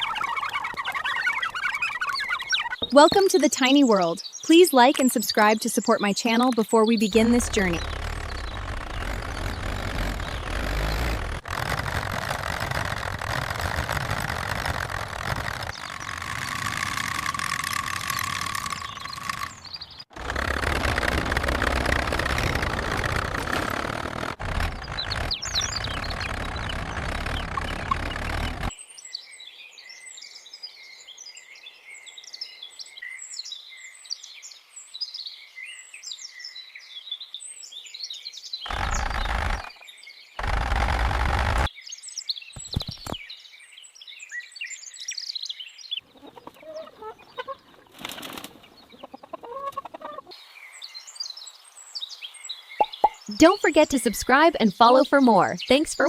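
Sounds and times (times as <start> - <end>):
birds chirping: 0.0 - 12.6, 13.6 - 28.7, 38.6 - 43.7, 44.6 - 56.0
heavy engine running: 7.1 - 19.6, 20.2 - 28.7, 40.4 - 41.7.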